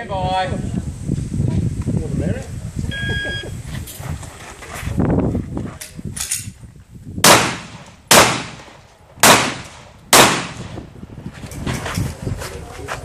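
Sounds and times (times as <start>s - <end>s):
pistol shots: 7.2s - 10.8s.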